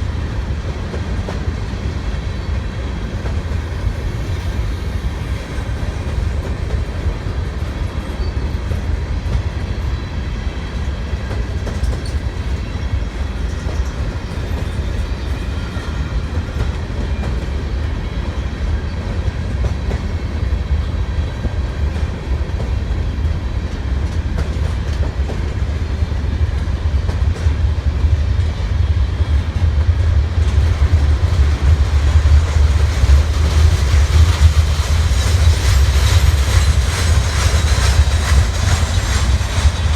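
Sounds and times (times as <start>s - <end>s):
clickety-clack over rail joints: 0.0s - 39.9s
freight train rumbling: 0.0s - 39.9s.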